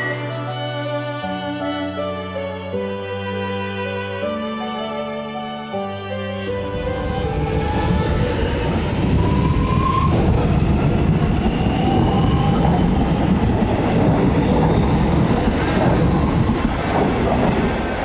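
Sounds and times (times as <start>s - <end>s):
train wheels rumbling on rails: 6.7s - 18.0s.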